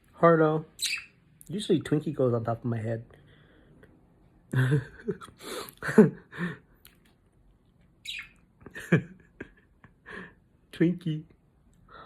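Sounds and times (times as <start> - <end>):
budgerigars chirping: 0.8 - 1.2, 8.0 - 8.4.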